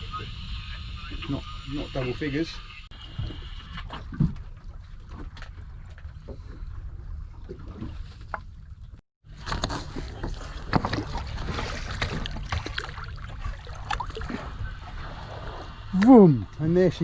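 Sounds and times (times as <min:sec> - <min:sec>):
wind and sea rumble: 0:00.0 - 0:17.0.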